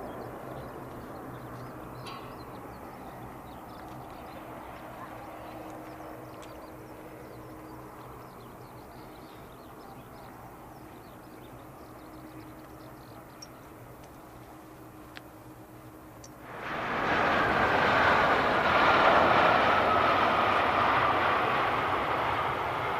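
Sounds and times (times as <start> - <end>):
small birds chirping: 0.0 - 16.4
distant aircraft rumble: 0.0 - 22.9
low hum: 0.0 - 22.9.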